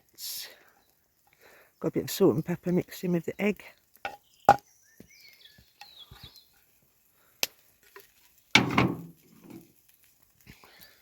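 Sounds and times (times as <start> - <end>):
bird chirps: 4.1 - 6.6.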